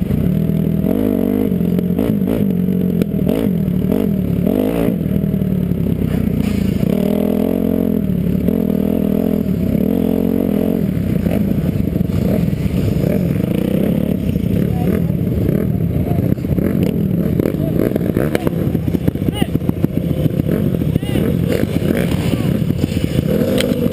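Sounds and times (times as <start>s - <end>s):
motocross engine revving: 0.0s - 23.9s
chassis clatter: 5.8s - 8.6s, 10.7s - 23.9s.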